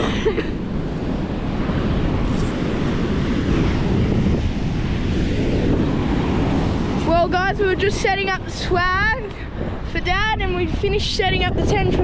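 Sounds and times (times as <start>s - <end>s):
surf: 0.0s - 12.0s
wind blowing on microphone: 0.0s - 12.0s.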